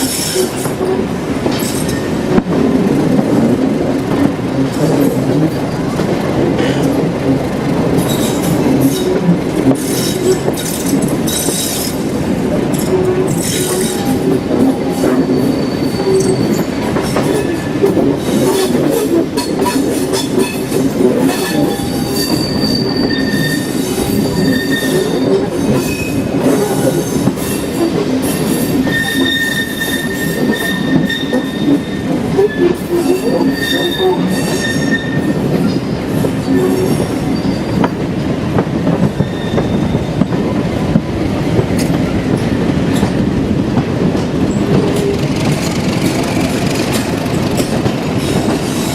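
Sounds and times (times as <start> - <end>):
train rumbling on rails: 0.0 - 48.9
high wheel squeal: 12.8 - 17.8, 21.4 - 28.0, 28.8 - 35.4, 36.4 - 37.9, 39.2 - 40.2.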